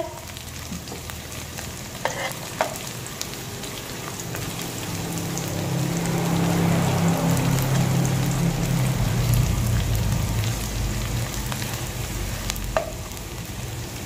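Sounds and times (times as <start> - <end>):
food sizzling in hot oil: 0.0 - 14.0
metal spatula scraping pan: 2.0 - 2.5.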